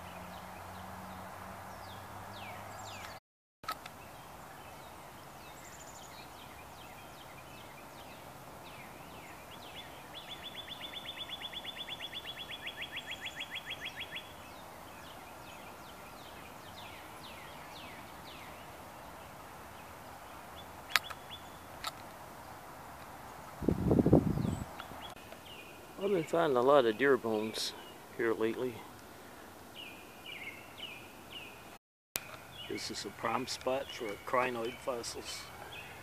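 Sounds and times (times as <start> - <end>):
bird chirps: 0.0 - 3.2, 3.9 - 21.7, 24.2 - 36.0
rapid bird trill: 5.2 - 18.7
sharp click: 20.9 - 21.2.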